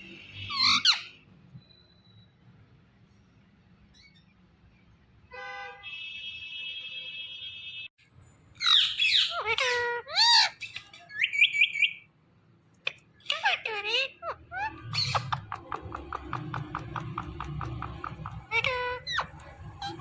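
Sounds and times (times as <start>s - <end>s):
parrot squawks and whistles: 0.3s - 2.2s, 8.6s - 12.0s, 13.3s - 15.6s.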